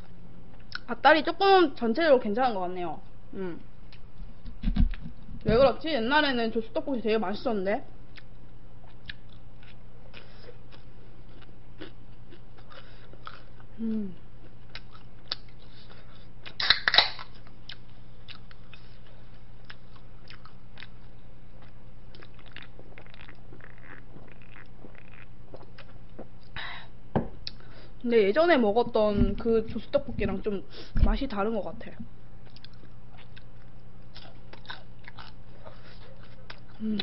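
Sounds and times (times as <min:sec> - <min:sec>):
chewing crunchy snacks: 0:08.9 - 0:13.8, 0:14.4 - 0:26.6, 0:32.4 - 0:37.0
drink can popping open: 0:16.6 - 0:17.2.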